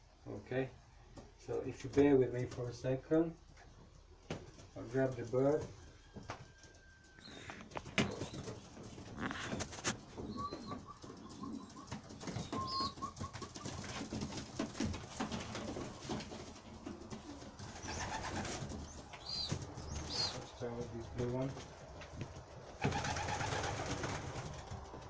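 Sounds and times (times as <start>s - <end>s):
pigeons cooing: 7.1s - 25.0s.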